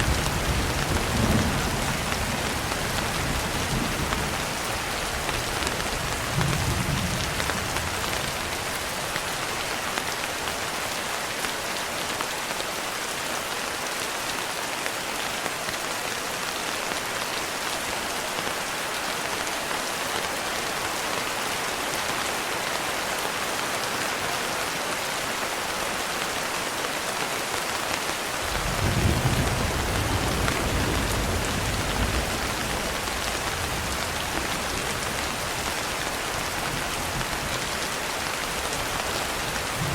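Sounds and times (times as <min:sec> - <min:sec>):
thunder rumbling: 0:28.5 - 0:35.8, 0:39.0 - 0:39.9.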